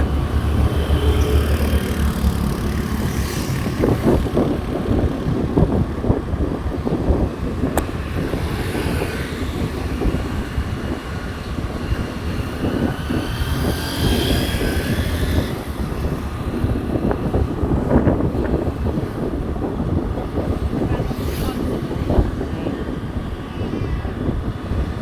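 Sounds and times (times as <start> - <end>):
motorcycle engine: 0.0 - 19.2
wind rumble on microphone: 0.0 - 25.0.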